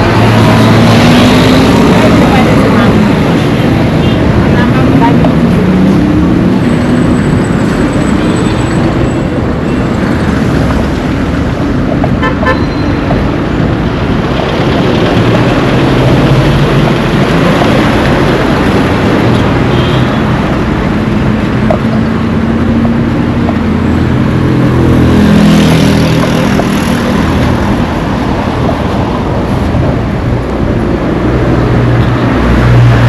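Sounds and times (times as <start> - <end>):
vehicles passing: 0.0 - 33.0
car horn toot: 12.2 - 12.8.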